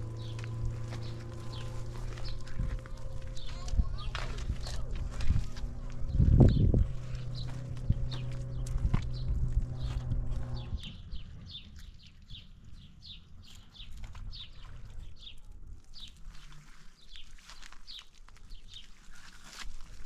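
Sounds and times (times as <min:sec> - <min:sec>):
low rumble: 0:00.0 - 0:15.6
bird chirping: 0:00.0 - 0:16.2
low hum: 0:00.0 - 0:16.7.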